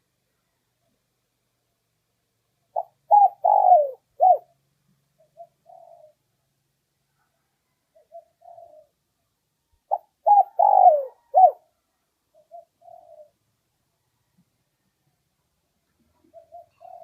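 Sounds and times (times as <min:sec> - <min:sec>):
dove cooing: 0:02.7 - 0:04.6, 0:05.2 - 0:06.3, 0:07.9 - 0:09.0, 0:09.9 - 0:11.7, 0:12.3 - 0:13.4, 0:16.2 - 0:17.0.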